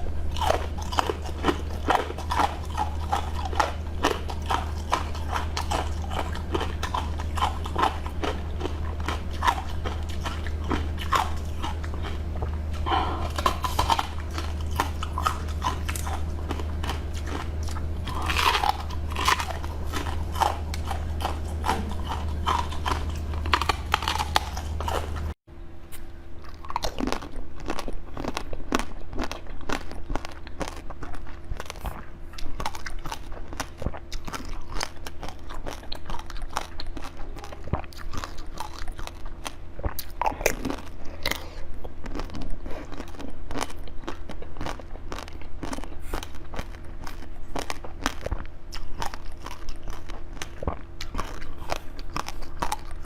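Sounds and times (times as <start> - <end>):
low hum: 0.0 - 29.7
crunchy chewing: 0.0 - 53.0.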